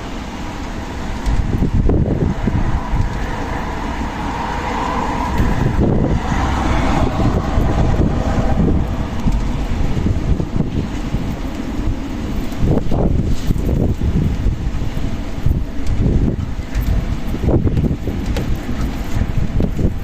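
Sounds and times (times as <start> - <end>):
strong wind blowing: 0.0 - 20.0
wind buffeting microphone: 0.0 - 20.0.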